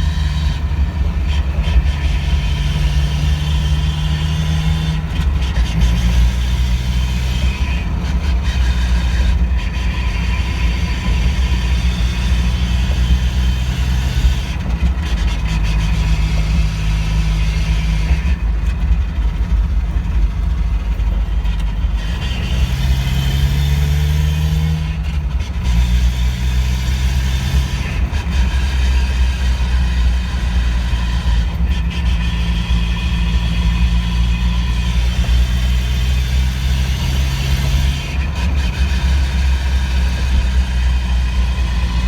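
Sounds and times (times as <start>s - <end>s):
car engine running: 0.0s - 42.0s.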